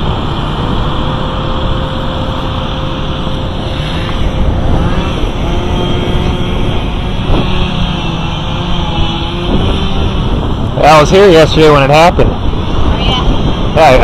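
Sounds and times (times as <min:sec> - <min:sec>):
faint steady whine: 0:00.0 - 0:14.0
road traffic rumble: 0:00.0 - 0:14.0.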